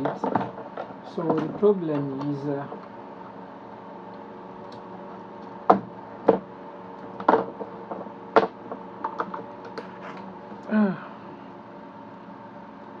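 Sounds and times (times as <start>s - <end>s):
faint steady hum: 0.0s - 13.0s
hard objects knocking on bench: 5.7s - 6.5s, 7.2s - 9.8s
short falling vocal sound: 10.6s - 11.3s.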